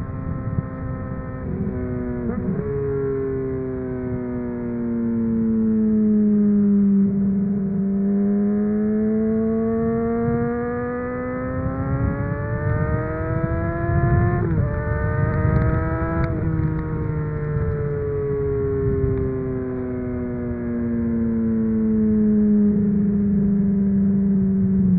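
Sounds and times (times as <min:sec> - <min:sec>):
motorcycle engine revving: 0:00.0 - 0:24.9
wind buffeting: 0:09.9 - 0:20.7.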